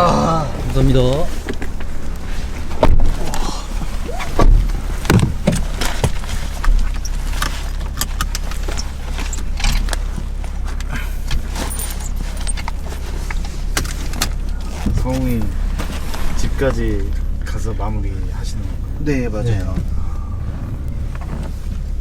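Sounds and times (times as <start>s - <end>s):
car engine and road rumble: 0.0s - 22.0s
small clicks and rattles: 4.7s - 17.1s.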